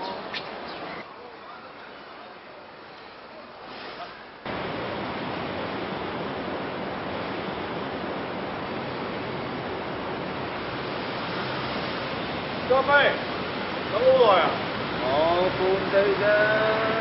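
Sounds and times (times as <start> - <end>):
loud steady rushing noise: 4.4 - 17.0.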